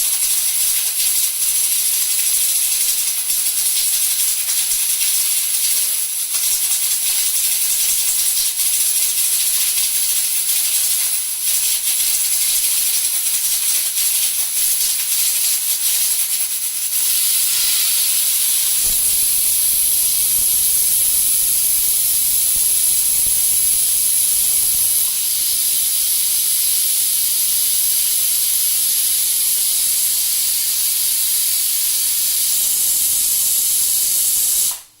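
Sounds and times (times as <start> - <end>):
pressure cookers whistling: 17.0 - 30.8, 31.6 - 35.0.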